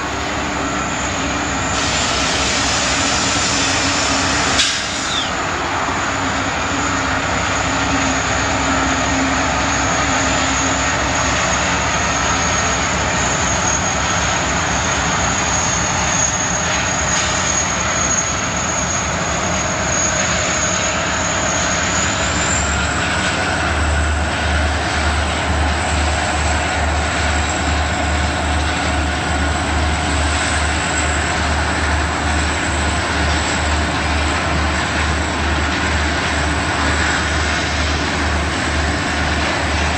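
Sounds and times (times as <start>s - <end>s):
freight train rumbling and clattering: 0.0s - 39.9s.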